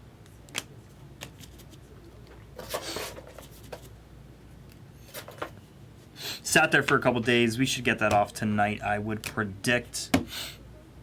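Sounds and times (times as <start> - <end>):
rustle of cards: 1.2 - 1.9.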